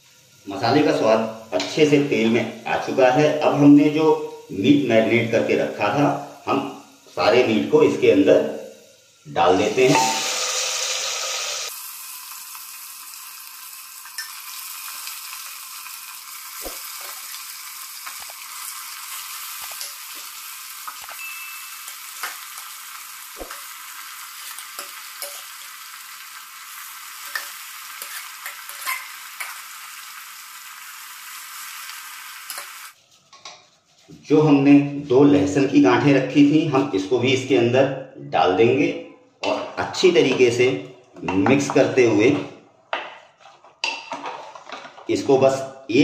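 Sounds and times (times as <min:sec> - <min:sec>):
meat and onions sizzling: 0:00.0 - 0:33.0.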